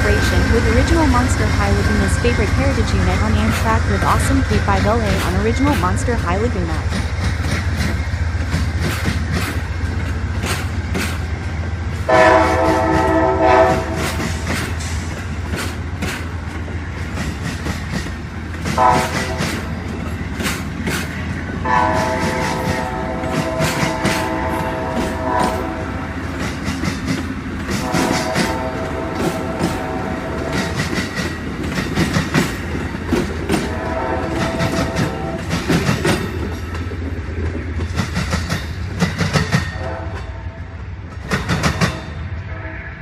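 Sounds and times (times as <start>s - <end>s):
train rumble: 0.0s - 42.7s
train air horn blasts: 12.1s - 14.4s, 18.8s - 19.7s, 21.6s - 26.2s, 27.8s - 31.0s, 33.6s - 35.5s, 39.7s - 40.6s, 42.3s - 43.0s.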